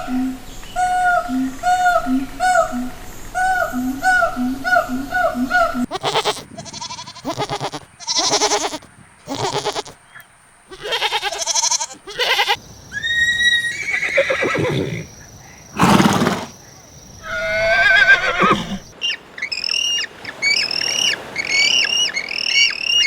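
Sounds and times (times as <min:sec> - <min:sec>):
farm animals quavering calls: 0:04.7 - 0:15.1, 0:15.8 - 0:16.5, 0:17.2 - 0:23.0.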